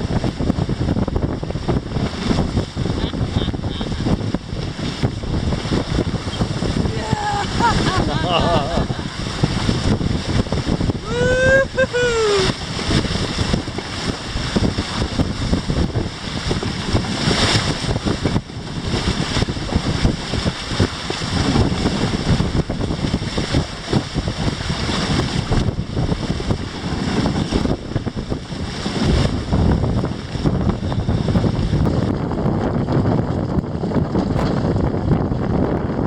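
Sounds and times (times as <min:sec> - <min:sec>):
water rushing along hulls: 0:00.0 - 0:36.0
wind buffeting microphone: 0:00.0 - 0:36.0.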